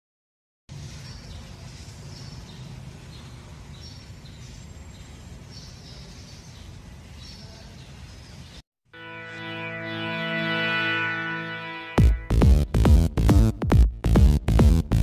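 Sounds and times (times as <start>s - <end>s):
birds chirping: 0.7s - 8.6s.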